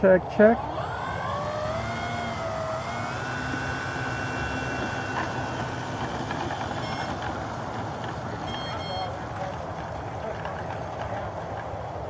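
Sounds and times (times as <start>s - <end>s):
electric motor propeller whine: 0.0s - 12.0s.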